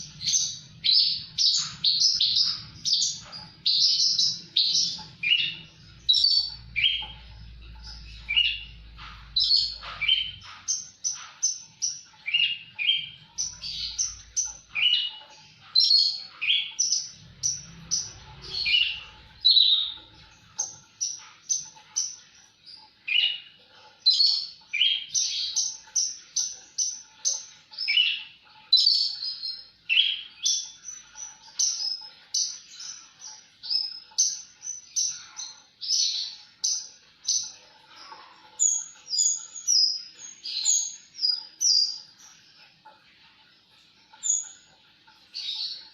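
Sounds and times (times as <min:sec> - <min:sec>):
bird chirps and trills: 0:00.0 - 0:45.9.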